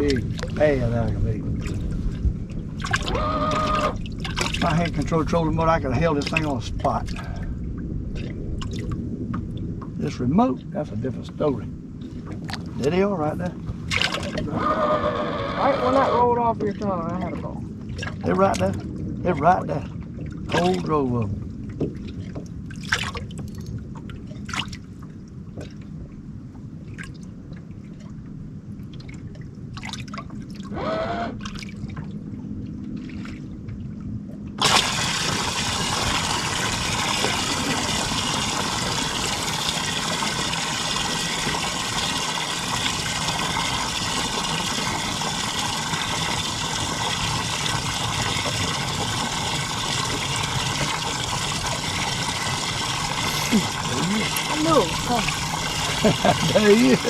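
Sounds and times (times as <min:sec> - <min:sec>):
rush of water-like noise: 0:00.0 - 0:09.1, 0:34.6 - 0:57.0.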